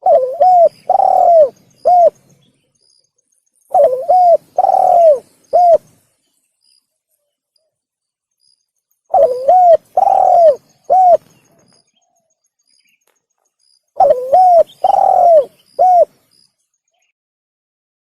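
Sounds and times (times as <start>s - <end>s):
dove cooing: 0.0s - 2.2s, 3.7s - 6.0s, 9.1s - 11.8s, 14.0s - 16.2s.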